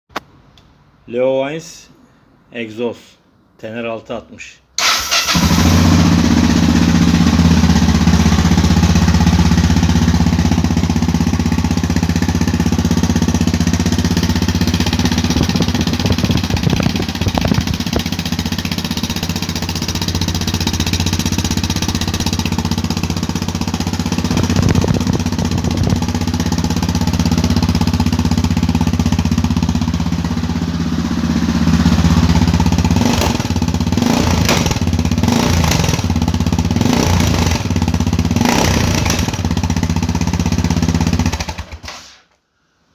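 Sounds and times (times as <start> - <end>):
motorcycle engine idling: 5.3 - 41.8.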